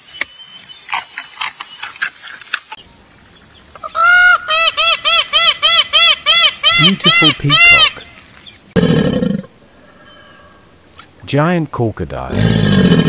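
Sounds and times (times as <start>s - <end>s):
bird honking calls: 3.8s - 8.2s.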